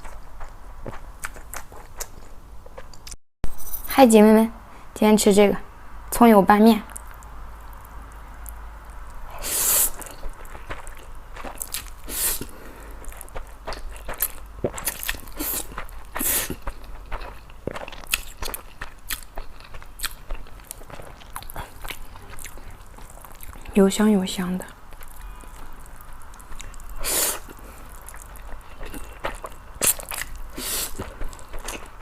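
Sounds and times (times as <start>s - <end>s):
wet chewing and mouth clicks: 0.0s - 3.2s, 6.9s - 23.8s, 24.8s - 32.0s
person eating noodles: 9.3s - 23.7s, 25.0s - 32.0s.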